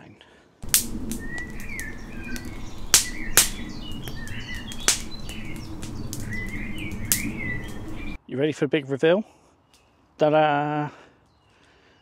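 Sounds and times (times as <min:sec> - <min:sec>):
songbirds singing: 0:00.0 - 0:08.4, 0:09.4 - 0:12.0
sharp cracks: 0:00.6 - 0:08.2.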